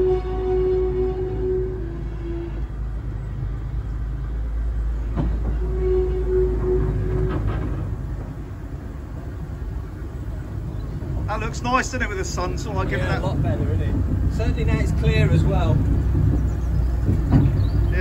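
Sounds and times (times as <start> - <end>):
wheels rumbling on rails: 0.0 - 18.0
sharp knocks: 16.0 - 17.8.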